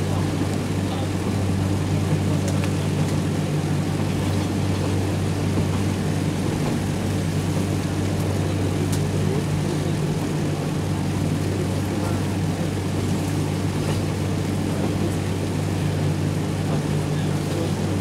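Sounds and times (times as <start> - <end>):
wheel and rail noise: 0.0 - 18.0.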